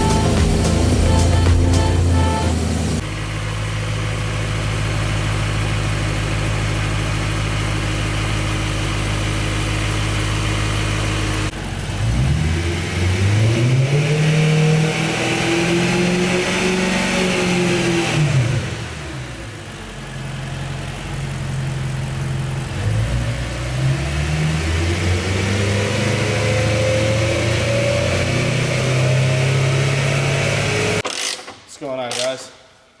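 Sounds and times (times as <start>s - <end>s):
car engine idling: 0.0s - 13.1s, 18.7s - 23.8s
car engine revving: 9.6s - 31.0s.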